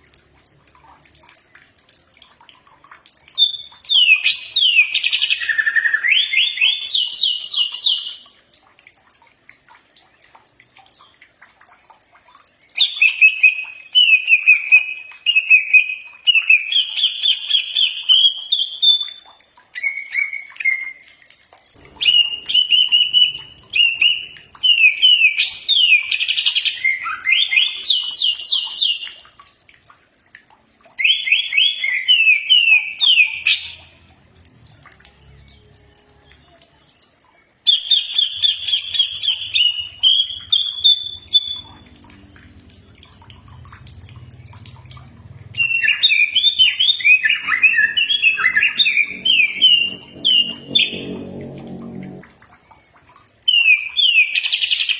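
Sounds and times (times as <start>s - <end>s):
bird singing whistled phrases: 22.0s - 28.0s, 37.7s - 41.8s.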